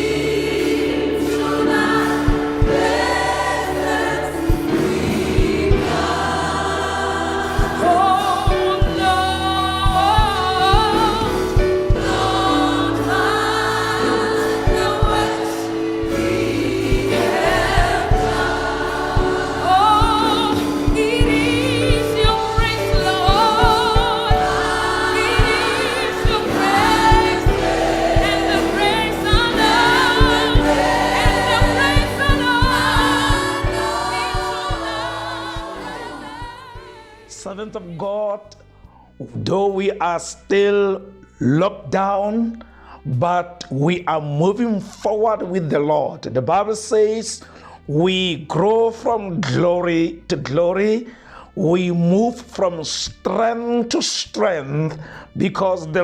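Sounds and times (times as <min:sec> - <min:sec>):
steady percussive beat: 0:00.0 - 0:37.1
gospel choir singing: 0:00.0 - 0:38.4.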